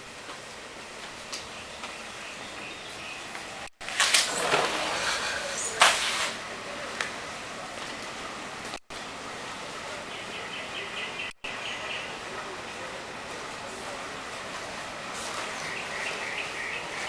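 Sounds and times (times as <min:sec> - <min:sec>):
birds chirping: 0:01.2 - 0:03.7, 0:09.8 - 0:14.4, 0:15.3 - 0:17.0.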